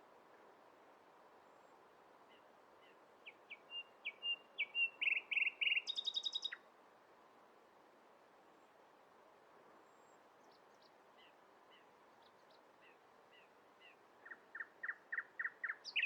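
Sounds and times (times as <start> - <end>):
faint background hiss: 0.0 - 16.0
songbird singing: 2.3 - 6.6, 10.4 - 16.0.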